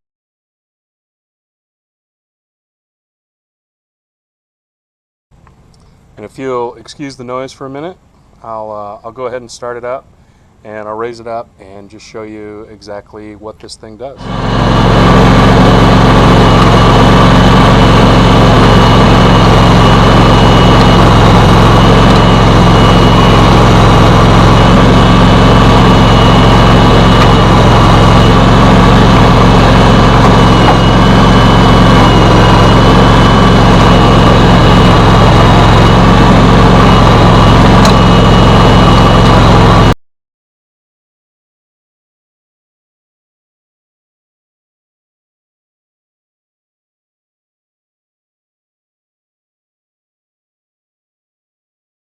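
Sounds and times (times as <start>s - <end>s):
garden tractor engine running: 5.4s - 39.9s.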